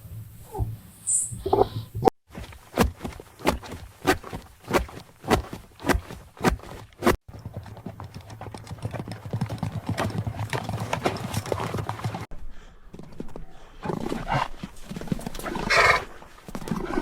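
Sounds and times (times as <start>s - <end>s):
hooves clattering on hard ground: 2.3s - 17.0s.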